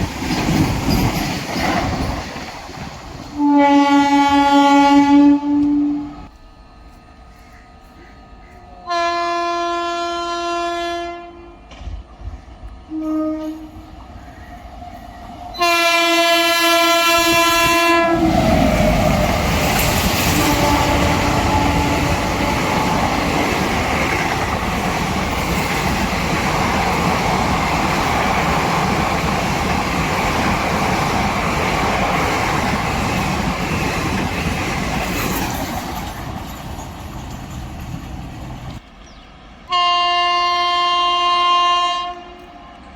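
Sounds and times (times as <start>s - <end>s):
train coaches rushing past: 0.0s - 5.0s, 11.6s - 41.3s
train horn blasts: 3.4s - 6.3s, 8.7s - 11.7s, 12.9s - 14.0s, 15.5s - 18.4s, 20.1s - 23.7s, 39.7s - 42.9s.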